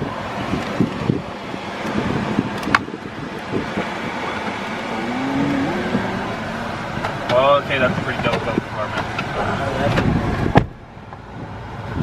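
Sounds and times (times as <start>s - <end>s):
car engine rushing noise: 0.0s - 12.0s
faint rising tone: 4.7s - 7.0s.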